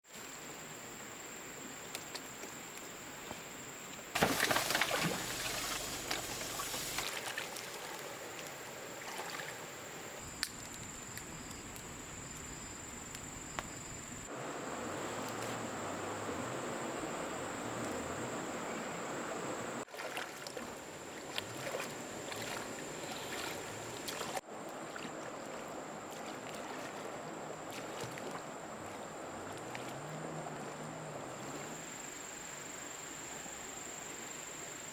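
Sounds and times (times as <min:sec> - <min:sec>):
water sloshing and trickling: 0:01.9 - 0:11.9, 0:14.8 - 0:32.0.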